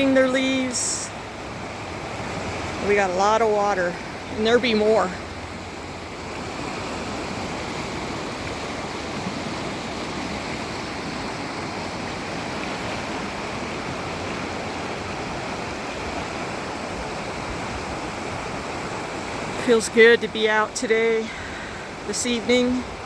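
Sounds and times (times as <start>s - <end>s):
creek rushing water: 0.0s - 23.0s.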